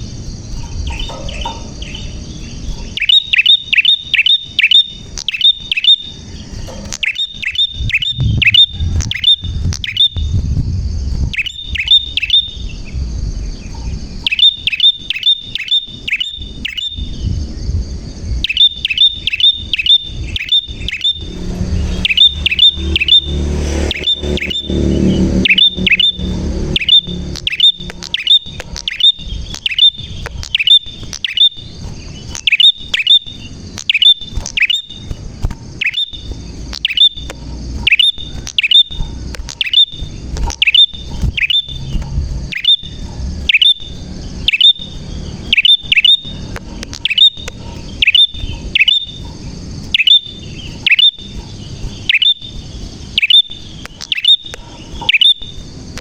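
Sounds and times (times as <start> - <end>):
prinia sharp chirps: 0.0 - 56.0.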